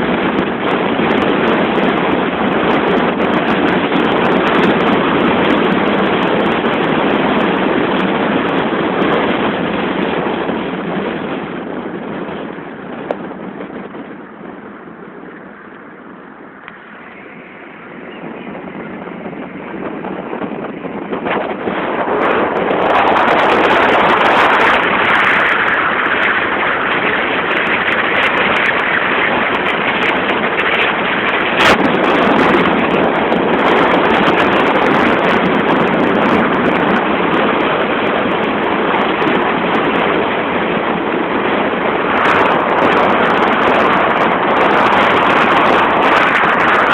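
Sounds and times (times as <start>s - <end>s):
wind and road noise in car: 0.0s - 46.9s.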